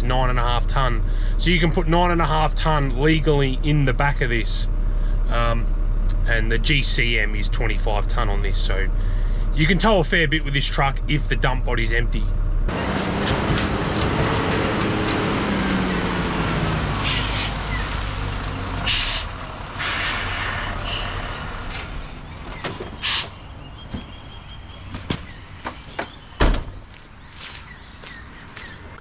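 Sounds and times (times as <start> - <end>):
diesel truck engine running: 0.0 - 27.1
sharp air hisses: 18.8 - 21.6.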